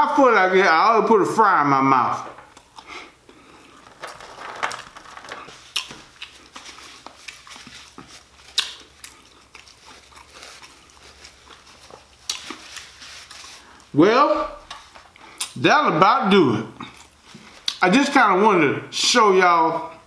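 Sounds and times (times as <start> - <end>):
chewing french fries: 2.5 - 4.0, 5.4 - 13.9, 16.7 - 17.8
paper napkin rustling: 3.7 - 8.6, 9.6 - 15.1.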